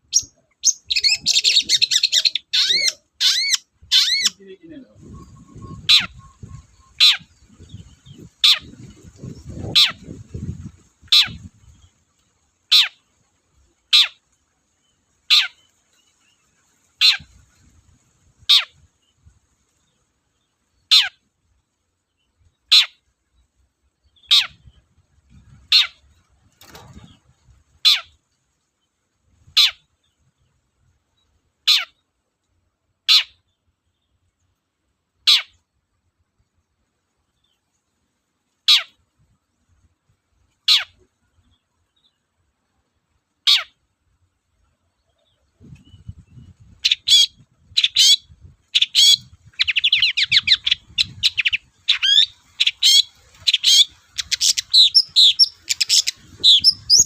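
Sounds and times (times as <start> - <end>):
bird giving sharp downward calls: 0.1 - 10.2, 46.7 - 57.0.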